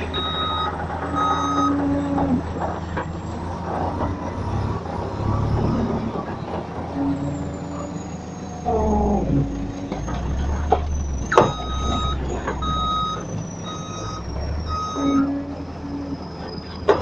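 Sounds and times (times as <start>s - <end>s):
diesel engines running: 0.0s - 17.0s
metal clanks and knocks: 9.2s - 13.3s.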